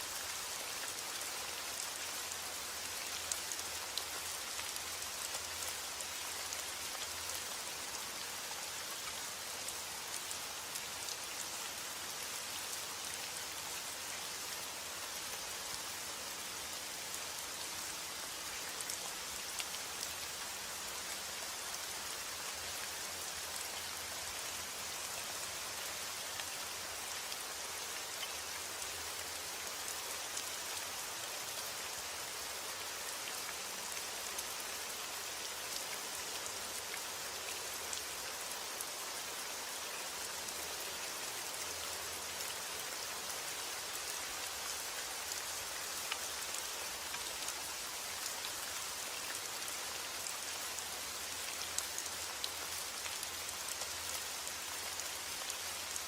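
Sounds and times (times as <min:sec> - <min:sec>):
rain on hard surface: 0:00.0 - 0:56.0.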